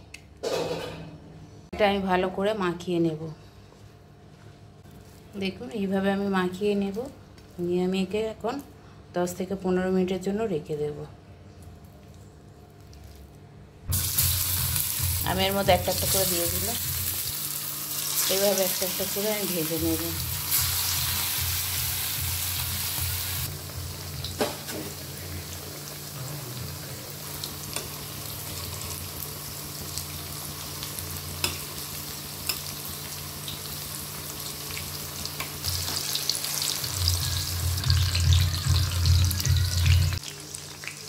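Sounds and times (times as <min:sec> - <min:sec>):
frying in hot oil: 0:13.9 - 0:41.0.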